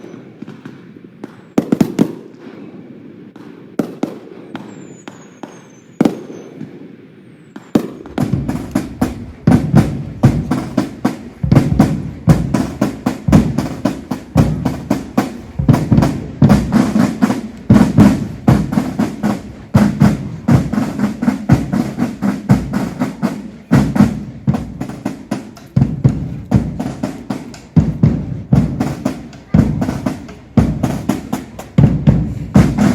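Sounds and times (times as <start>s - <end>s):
whistling rockets: 0.0s - 2.7s, 3.3s - 8.8s
fireworks bangs and crackles: 0.0s - 32.9s.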